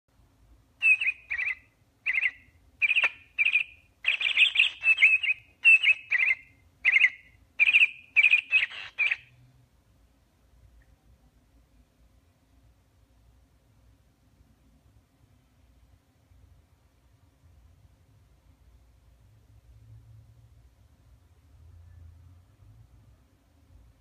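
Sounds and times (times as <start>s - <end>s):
bird chirping: 0.8s - 9.4s.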